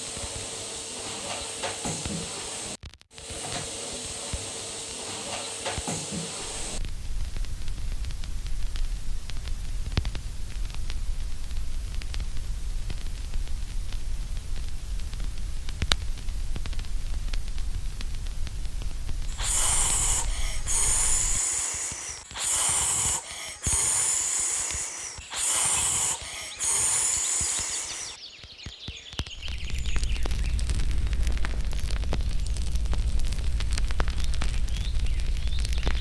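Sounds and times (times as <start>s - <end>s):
loud hissing bursts: 0.0s - 6.8s, 19.3s - 28.2s
faint crackles: 0.0s - 36.0s
falling whine: 19.3s - 28.2s
low rumbling static: 29.7s - 35.9s.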